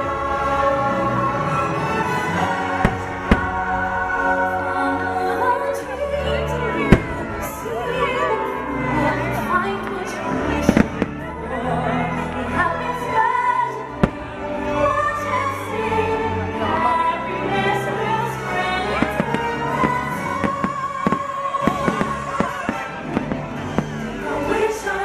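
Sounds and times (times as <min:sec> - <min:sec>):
music with singing: 0:00.0 - 0:25.0
firework bangs: 0:02.8 - 0:03.9, 0:14.0 - 0:14.4, 0:19.0 - 0:24.0.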